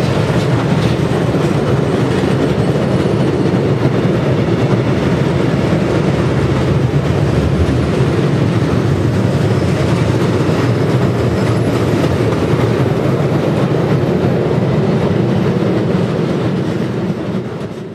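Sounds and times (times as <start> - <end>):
train wheels rumbling on rails: 0.0 - 17.9.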